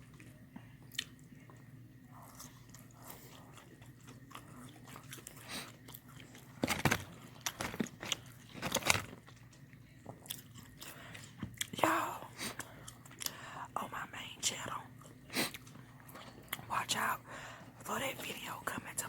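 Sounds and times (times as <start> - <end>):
mouth clicks and chewing: 0.0 - 6.5.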